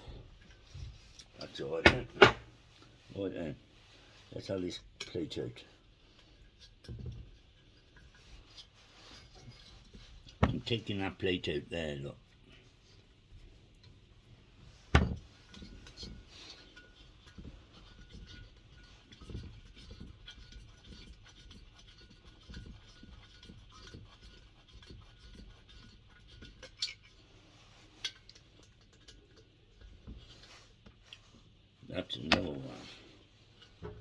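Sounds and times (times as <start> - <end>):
metal and tools clinking: 1.1 - 2.5.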